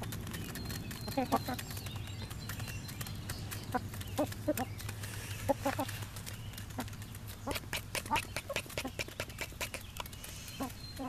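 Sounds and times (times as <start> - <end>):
hens clucking: 0.0 - 11.0
light ticks of pecking: 0.0 - 11.0.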